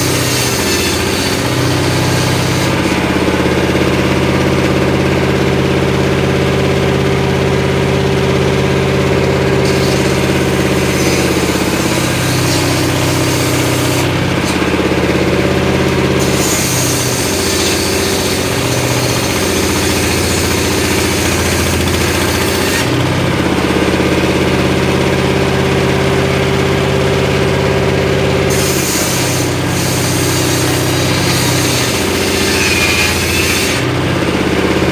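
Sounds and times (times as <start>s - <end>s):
saw blade cutting wood: 0.0s - 5.5s, 9.4s - 25.2s, 28.4s - 34.9s
engine running: 0.0s - 34.9s.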